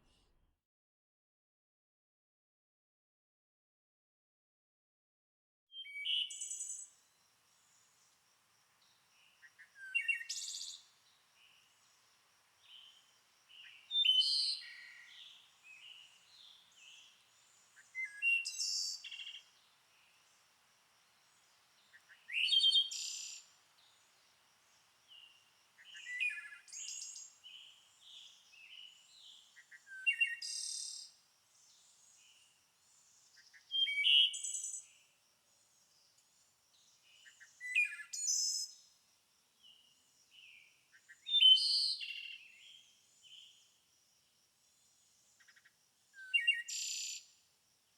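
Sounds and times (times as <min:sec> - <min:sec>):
songbird singing: 0:05.7 - 0:47.9
soft bird chirps: 0:08.8 - 0:39.0, 0:44.7 - 0:47.4.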